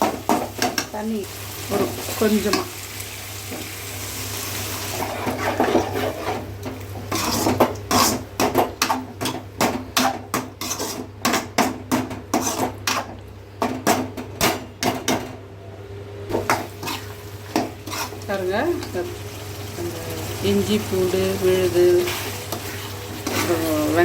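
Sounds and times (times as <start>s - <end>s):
chicken sizzling in frying pan: 0.0s - 8.1s, 16.3s - 24.0s
spoon scraping frying pan: 4.9s - 13.2s, 16.3s - 19.1s, 20.2s - 24.0s.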